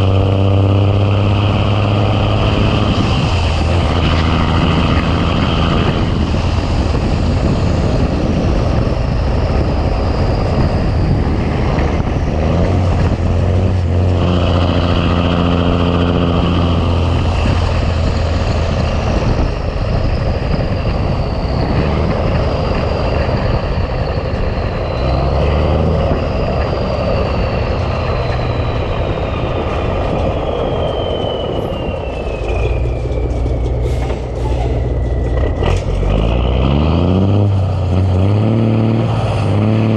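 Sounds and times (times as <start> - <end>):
diesel truck engine drone: 0.0 - 39.9
high whistle falling in pitch: 26.2 - 35.8.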